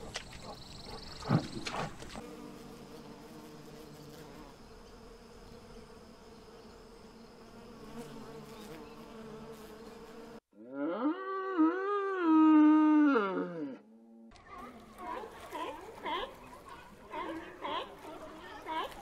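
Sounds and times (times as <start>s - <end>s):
bees buzzing: 1.1s - 10.5s, 14.4s - 19.0s
animal call rising in pitch: 10.6s - 14.3s.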